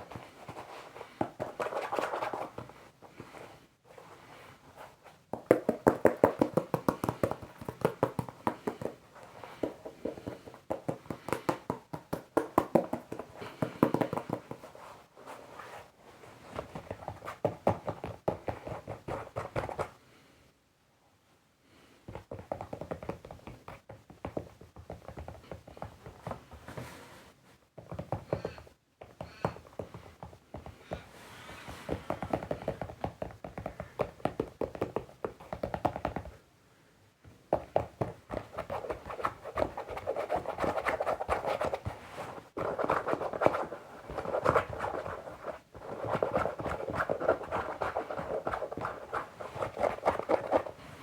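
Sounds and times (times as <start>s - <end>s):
light tapping on foam clogs: 4.8s - 20.0s, 22.0s - 27.1s, 27.7s - 36.4s, 37.2s - 51.0s.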